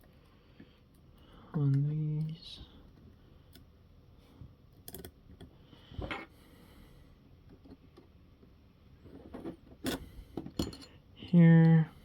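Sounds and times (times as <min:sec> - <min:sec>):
small parts clicking and tapping: 0:04.7 - 0:06.3.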